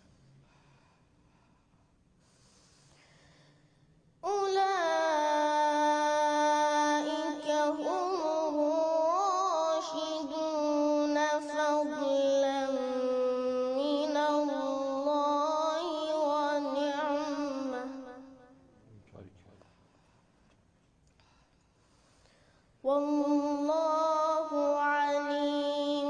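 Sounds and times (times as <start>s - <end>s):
person reciting melodically: 4.2s - 18.4s, 22.8s - 26.0s.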